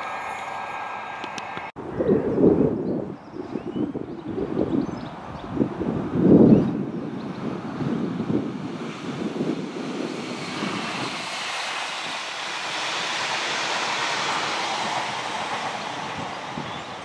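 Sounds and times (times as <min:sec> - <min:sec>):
train passing at speed: 0:00.0 - 0:01.8, 0:04.0 - 0:17.0
wind buffeting microphone: 0:01.0 - 0:17.0.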